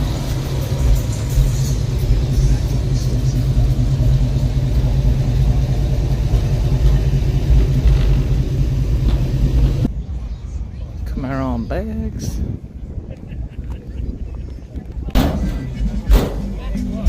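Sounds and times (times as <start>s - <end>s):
car engine running: 0.0s - 9.9s.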